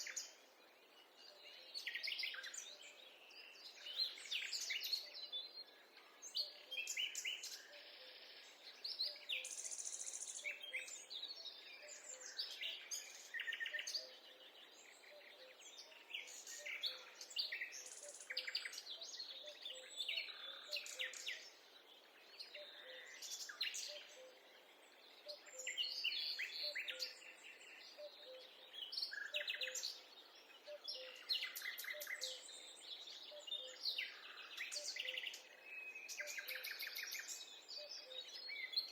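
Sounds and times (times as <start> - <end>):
birds chirping and trilling: 0.0 - 38.9.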